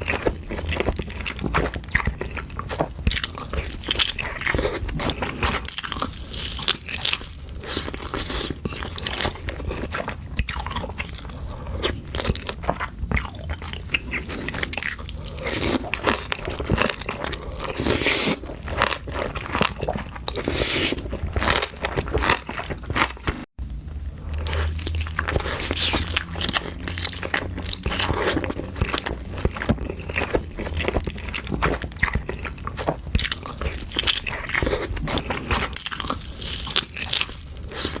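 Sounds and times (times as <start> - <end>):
person chewing crunchy food: 0.0 - 23.5, 24.1 - 38.0.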